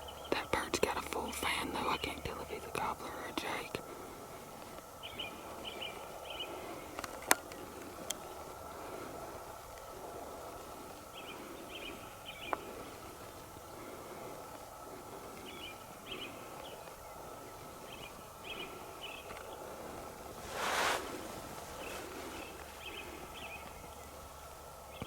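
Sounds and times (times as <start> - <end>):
outdoor background noise: 0.0 - 25.0
rushing sound: 20.4 - 21.8.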